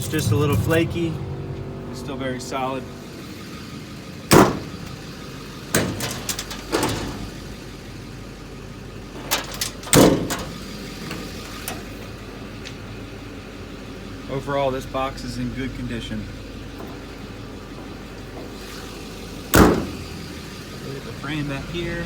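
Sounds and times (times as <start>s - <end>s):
low engine hum: 0.0s - 22.0s
metal door banging: 4.3s - 7.4s, 9.1s - 11.9s, 19.4s - 20.5s
metal latches clattering: 5.7s - 7.4s, 9.1s - 12.0s, 19.5s - 20.1s.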